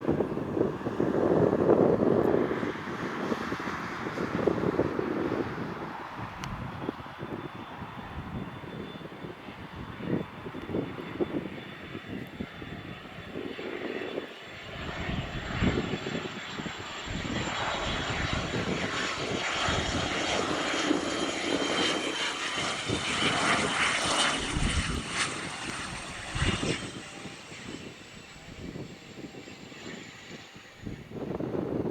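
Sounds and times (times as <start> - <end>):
jet engine whine: 0.0 - 31.9
rushing jet noise: 14.7 - 31.4.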